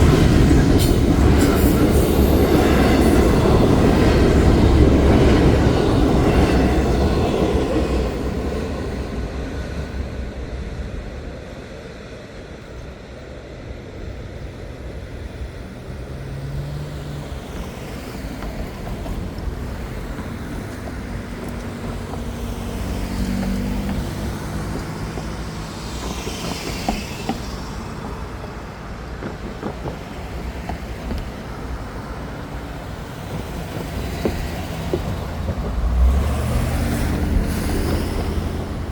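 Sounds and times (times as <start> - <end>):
vehicles driving past: 15.4 - 38.9.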